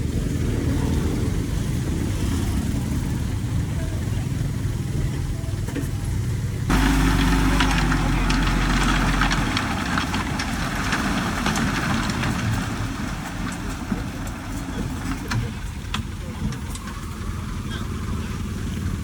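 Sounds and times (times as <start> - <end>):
heavy diesel engine under load: 0.0 - 19.0
earth and stone scraping: 6.7 - 15.4.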